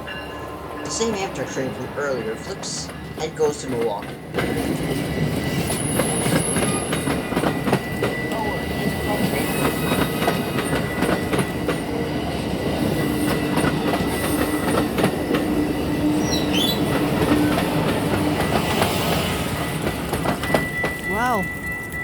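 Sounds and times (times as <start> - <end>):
train rumble and hum: 0.0 - 22.0
train wheels clacking over joints: 2.7 - 22.0.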